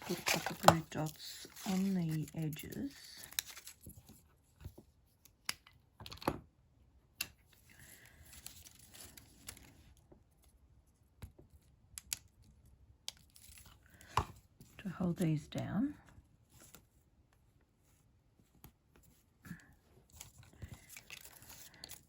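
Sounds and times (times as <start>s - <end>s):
paper rustling: 0.0s - 4.8s, 20.1s - 22.0s.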